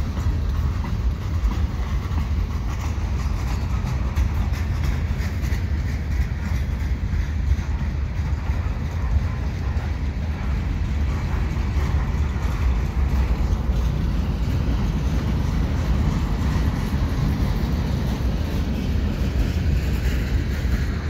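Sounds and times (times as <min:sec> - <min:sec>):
steel wheels rumbling on rail: 0:00.0 - 0:21.0.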